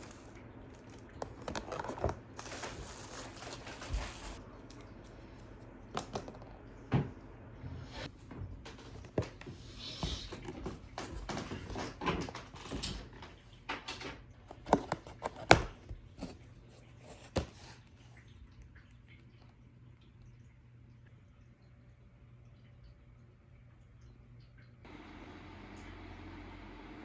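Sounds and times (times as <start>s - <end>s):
objects being handled: 0.0s - 7.1s.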